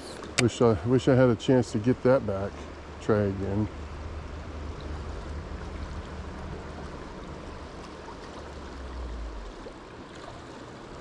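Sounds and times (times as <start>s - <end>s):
river water flowing: 0.0s - 11.0s
low rumble: 2.9s - 9.9s.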